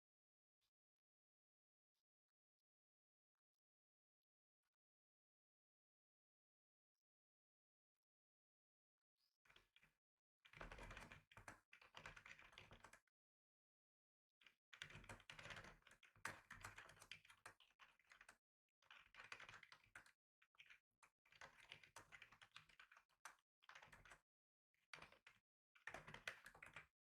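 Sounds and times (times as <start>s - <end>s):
typing on a computer keyboard: 10.5s - 13.0s, 14.5s - 24.2s, 25.0s - 27.0s.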